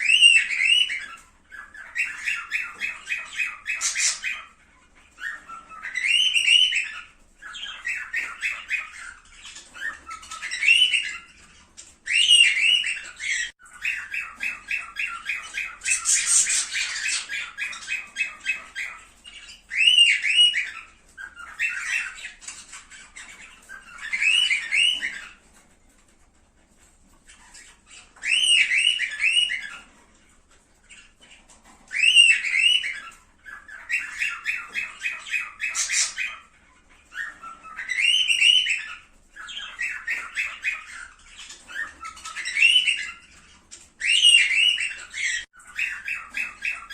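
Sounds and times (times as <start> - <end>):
cockatiels chirping and squawking: 0.0 - 46.9.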